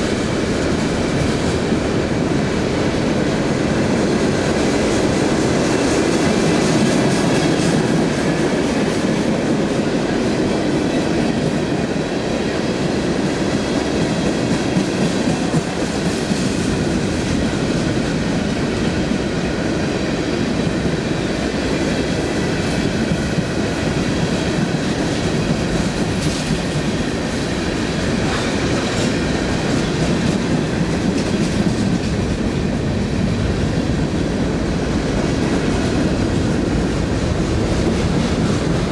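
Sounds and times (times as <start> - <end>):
steel wheels rolling on rail: 0.0 - 38.9.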